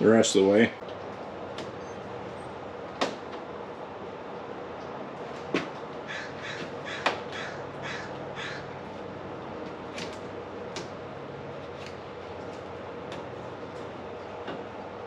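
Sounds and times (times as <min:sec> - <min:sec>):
background hum: 0:00.0 - 0:15.0
bird calling: 0:06.0 - 0:09.1
sharp knocks: 0:06.4 - 0:08.0.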